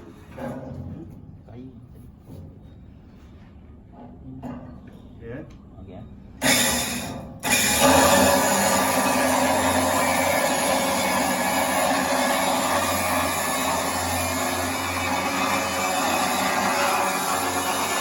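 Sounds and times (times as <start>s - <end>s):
wood chipper running: 6.4s - 18.0s.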